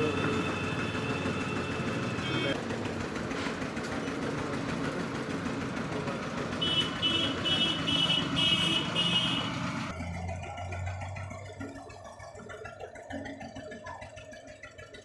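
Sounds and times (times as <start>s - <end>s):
vehicle and street noise: 0.0s - 15.0s.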